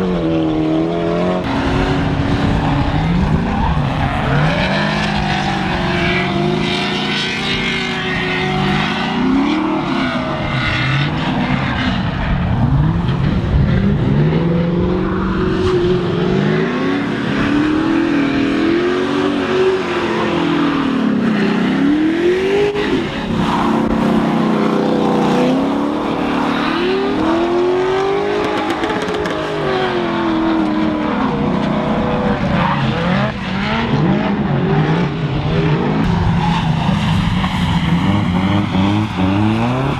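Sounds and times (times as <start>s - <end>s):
car engines revving: 0.0s - 39.9s
tyres sliding on wet track: 36.1s - 39.9s.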